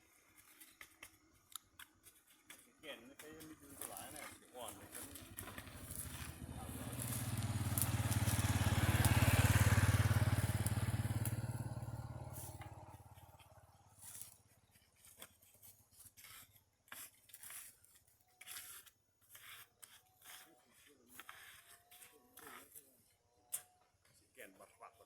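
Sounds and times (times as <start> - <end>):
vehicle engine passing by: 4.8 - 14.4.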